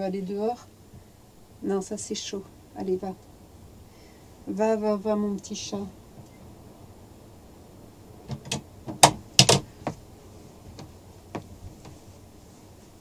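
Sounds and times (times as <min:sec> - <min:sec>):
sharp clicks and knocks: 0:08.3 - 0:10.0, 0:10.7 - 0:12.0.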